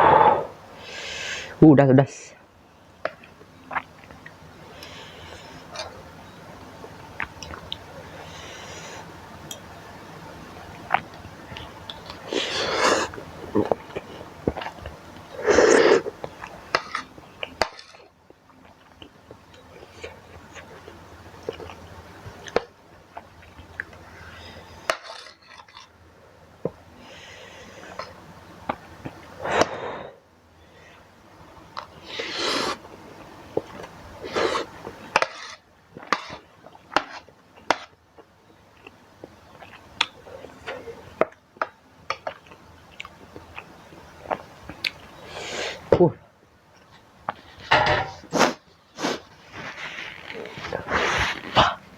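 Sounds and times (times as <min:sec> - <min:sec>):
loud sucking of air: 0:00.0 - 0:01.6
chewing: 0:10.8 - 0:24.0, 0:33.6 - 0:41.3, 0:42.1 - 0:45.1
noodle slurping: 0:32.0 - 0:32.8.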